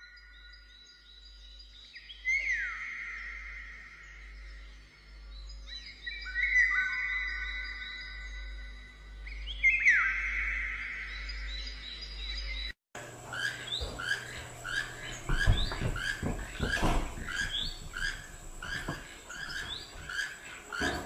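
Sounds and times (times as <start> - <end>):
bird rising chirp: 0.2 - 21.0
low thumps: 13.8 - 20.2.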